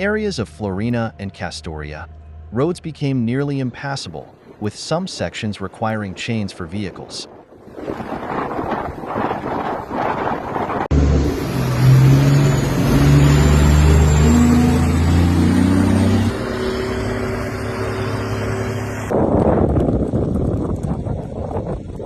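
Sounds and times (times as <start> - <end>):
wind noise on microphone: 5.8 - 10.9, 19.1 - 22.0
car engine revving: 10.5 - 19.1.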